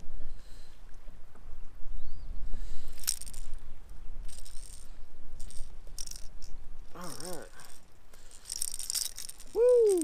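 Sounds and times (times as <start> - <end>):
fishing lure rattling: 2.8 - 10.0.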